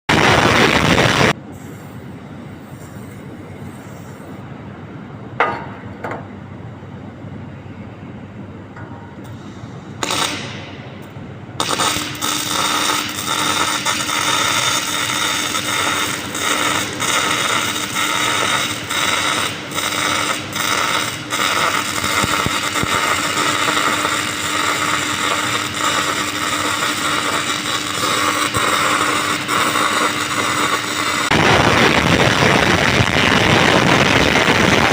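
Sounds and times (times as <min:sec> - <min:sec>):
electric arc welding crackling: 0:00.1 - 0:01.4, 0:10.0 - 0:10.7, 0:11.6 - 0:34.9.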